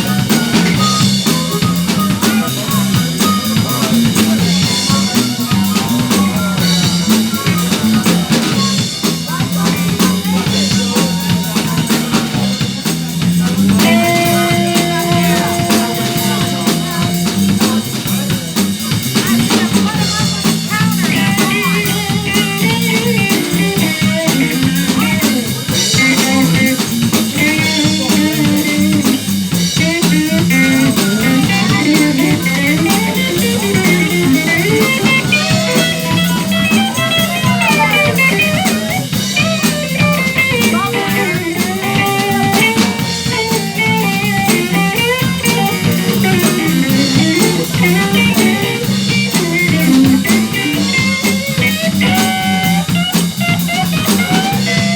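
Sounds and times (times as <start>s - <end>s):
blues band playing: 0.0s - 54.9s.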